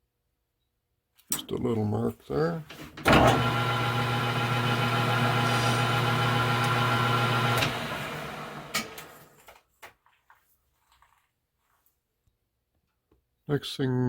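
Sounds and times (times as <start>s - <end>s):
lathe motor humming: 3.1s - 9.4s.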